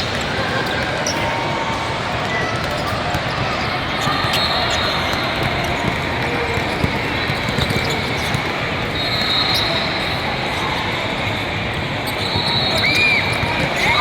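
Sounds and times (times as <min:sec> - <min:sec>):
basketball bouncing: 0:00.0 - 0:08.6
game and crowd noise: 0:00.0 - 0:14.0.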